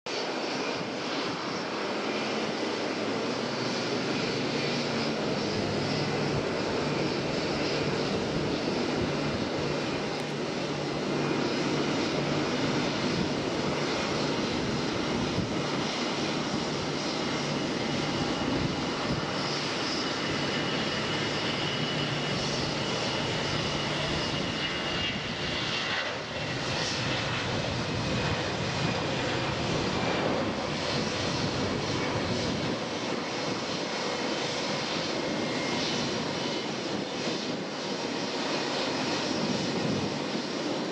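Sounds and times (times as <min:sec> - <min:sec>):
jet engine rush: 0:00.1 - 0:40.9.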